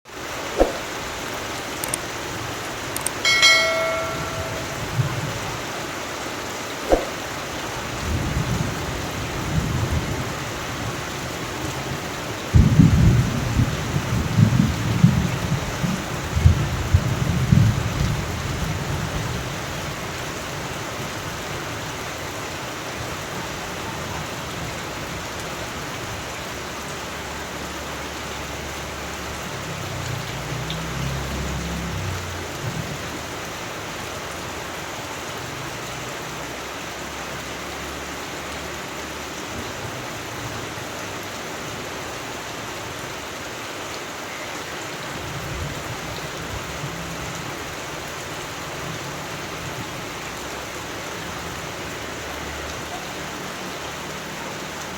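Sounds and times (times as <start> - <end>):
steady rain falling: 0.1 - 54.9
thunder rumbling: 12.5 - 19.4.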